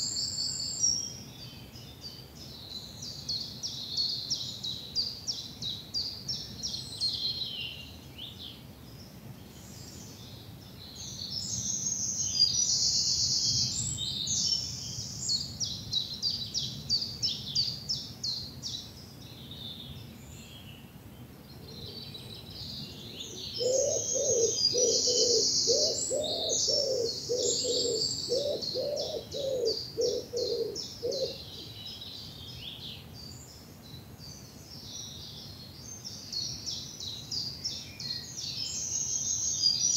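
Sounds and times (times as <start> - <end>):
songbirds singing trills: 0.0 - 39.9
low repeating bird call: 23.2 - 31.7.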